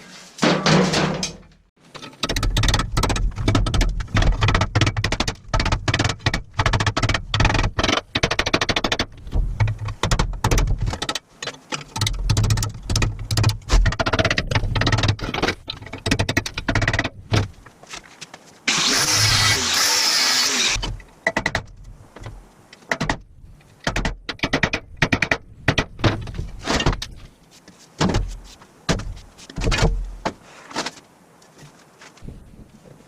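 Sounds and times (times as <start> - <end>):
power tool on cast iron: 18.7 - 20.8.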